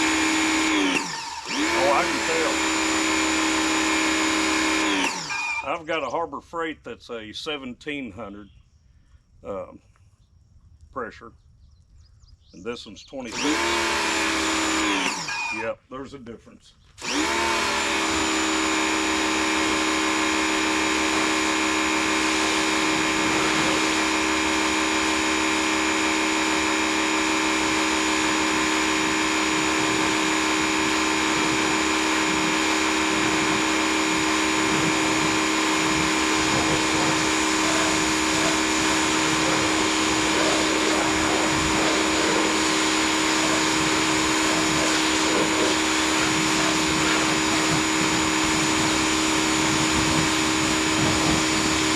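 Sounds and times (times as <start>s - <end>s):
electric pressure washer running: 0.0s - 5.8s, 13.3s - 15.7s, 17.0s - 51.9s
water spray hissing: 27.2s - 51.9s.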